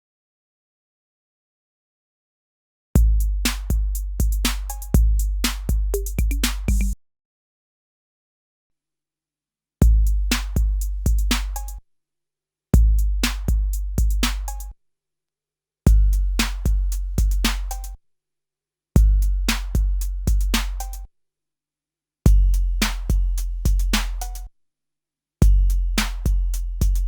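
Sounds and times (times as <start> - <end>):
booming bass kick drum: 3.0 - 7.0, 9.8 - 11.7, 12.8 - 14.5, 15.9 - 17.8, 19.0 - 20.8, 22.3 - 24.2, 25.4 - 27.0.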